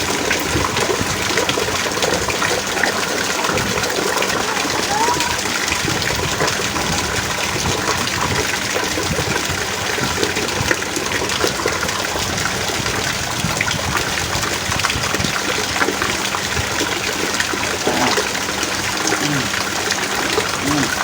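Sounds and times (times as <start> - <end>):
heavy rain falling: 0.0 - 21.0
water running: 0.0 - 21.0.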